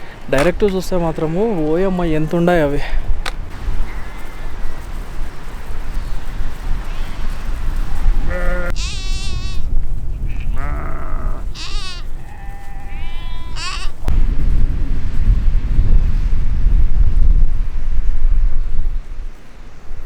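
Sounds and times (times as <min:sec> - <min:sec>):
sheep bleating: 0:08.1 - 0:09.7, 0:10.3 - 0:14.1
steady low rumble: 0:14.0 - 0:19.5.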